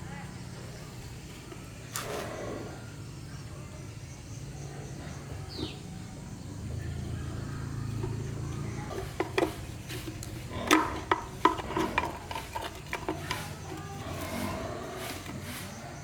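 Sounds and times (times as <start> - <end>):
metallic clinks and knocks: 8.0 - 14.6.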